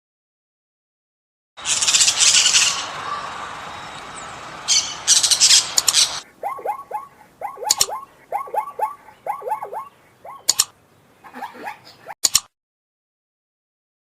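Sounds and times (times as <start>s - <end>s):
bird squawking: 1.6s - 12.2s
short falling bird calls: 1.6s - 12.2s.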